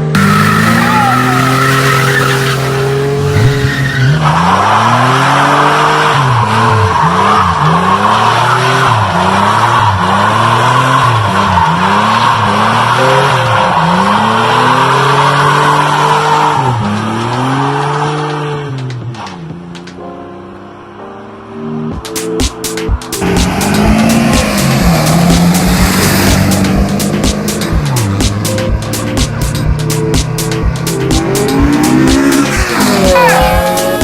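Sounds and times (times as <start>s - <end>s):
car engine revving: 0.0s - 21.0s, 21.6s - 34.0s
tyres squealing: 0.1s - 5.0s.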